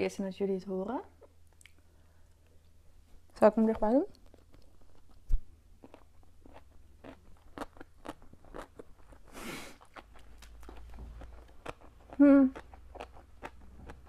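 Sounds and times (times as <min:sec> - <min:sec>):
chewing crunchy food: 0:03.7 - 0:14.0.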